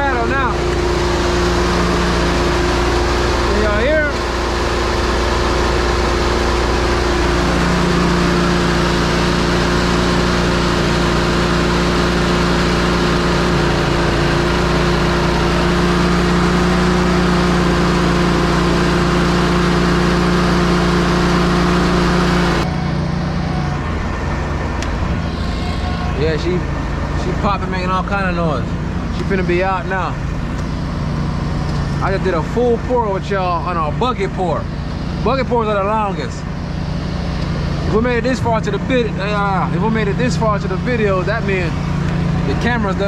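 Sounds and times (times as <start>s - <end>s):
truck engine running: 0.0s - 43.0s.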